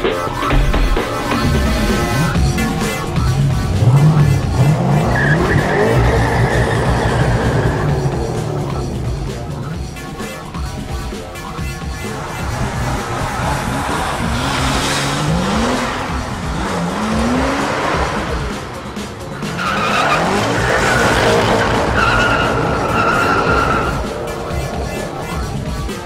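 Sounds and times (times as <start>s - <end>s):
background music: 0.0s - 26.0s
sports car engine accelerating: 1.1s - 26.0s
tyre squeal: 4.4s - 8.8s, 19.4s - 25.4s.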